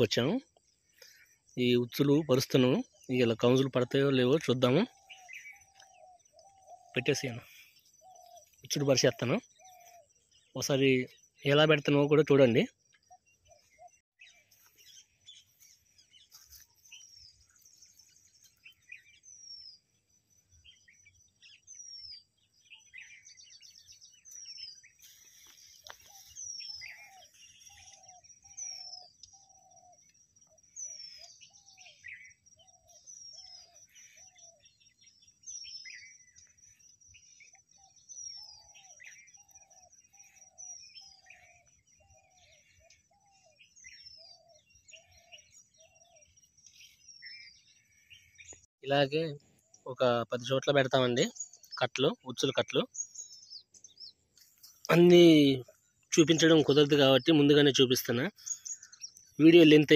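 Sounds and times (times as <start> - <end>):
birds chirping: 0.0 - 59.9
lower evenly paced bird calls: 0.0 - 59.9
high falling bird call: 20.6 - 36.6.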